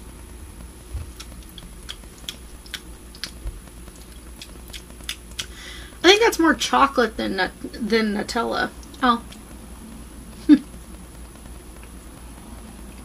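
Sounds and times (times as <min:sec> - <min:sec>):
person chewing: 0:00.9 - 0:05.6
mouth clicks: 0:01.1 - 0:05.6.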